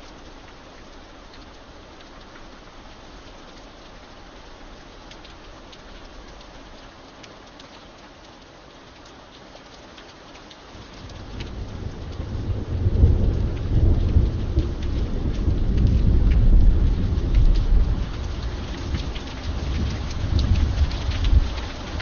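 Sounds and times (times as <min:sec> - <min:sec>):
steady rain: 0:00.0 - 0:22.0
low rumble of thunder: 0:10.7 - 0:22.0.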